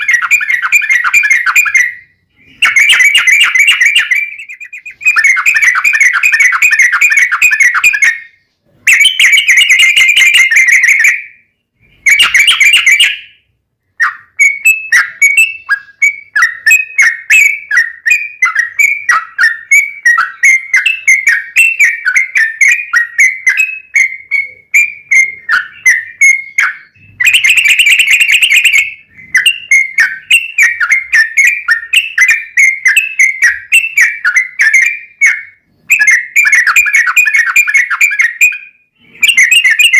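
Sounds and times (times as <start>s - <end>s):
bulbul song: 0.0s - 39.9s.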